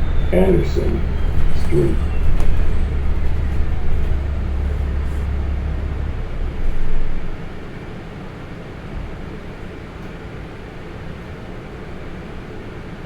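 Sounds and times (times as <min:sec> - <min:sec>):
bus engine rumble: 0:00.0 - 0:09.7.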